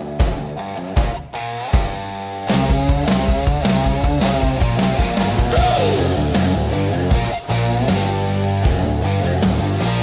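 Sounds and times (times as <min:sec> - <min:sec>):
electric guitar bending notes: 0:00.0 - 0:10.0
heavy drum hits: 0:00.1 - 0:07.4.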